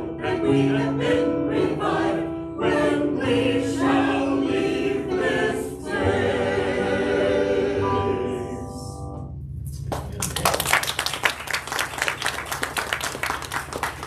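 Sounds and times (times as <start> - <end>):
church choir singing: 0.0 - 9.2.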